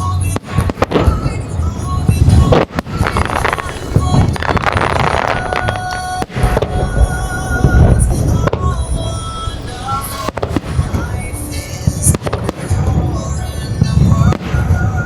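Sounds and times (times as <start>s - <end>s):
fireworks booming and cracking: 0.0s - 15.0s
music over loudspeakers: 0.0s - 15.0s.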